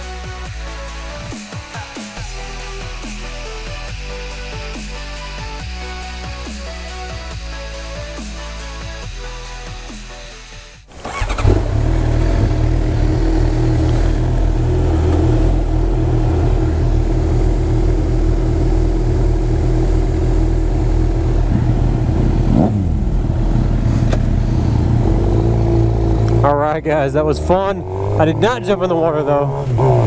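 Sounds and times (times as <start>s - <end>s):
motorcycle engines idling: 10.9s - 30.0s.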